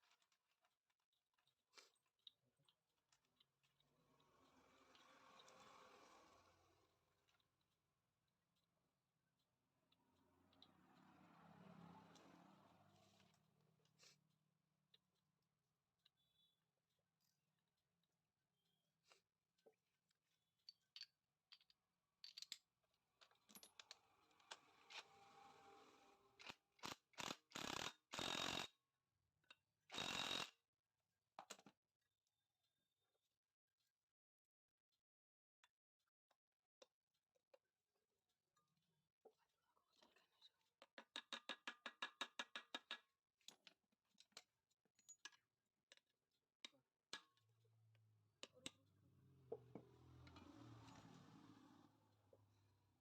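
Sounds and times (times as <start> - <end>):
metal scraping strokes: 24.0 - 26.4.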